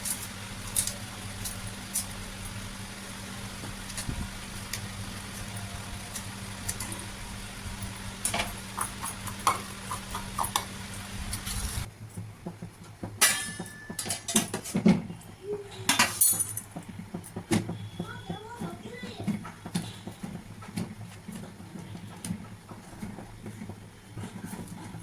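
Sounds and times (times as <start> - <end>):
steady hum: 0.0 - 11.9
dishes and utensils clinking: 13.2 - 14.7.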